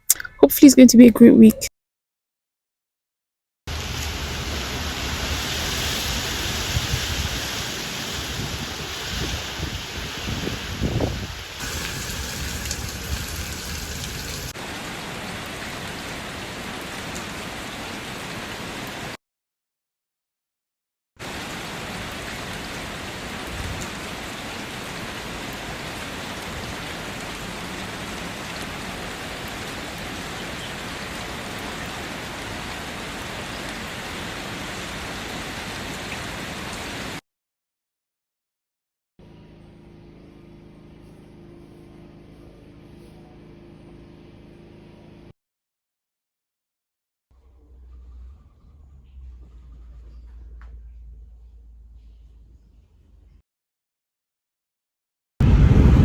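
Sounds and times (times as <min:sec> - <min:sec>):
rain falling: 0:03.7 - 0:19.2, 0:21.2 - 0:37.2.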